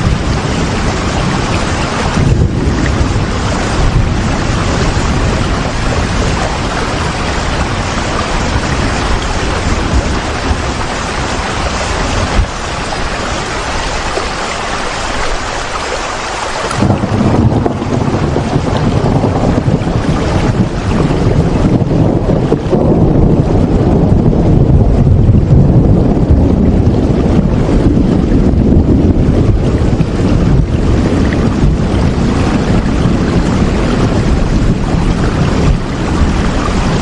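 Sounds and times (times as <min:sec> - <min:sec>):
deep low rumble: 0:00.0 - 0:12.6, 0:16.7 - 0:37.0
heavy rain: 0:00.0 - 0:37.0.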